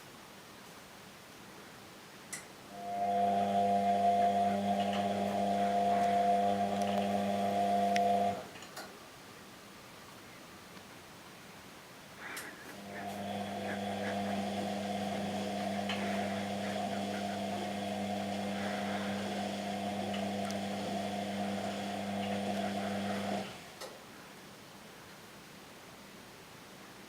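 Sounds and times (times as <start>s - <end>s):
washing machine motor humming: 2.8s - 8.6s, 12.7s - 23.8s.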